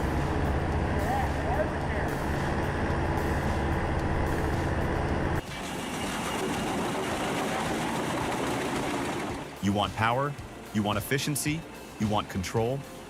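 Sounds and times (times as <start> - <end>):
heavy diesel engine humming: 0.0 - 9.8
noisy machine: 0.0 - 10.6.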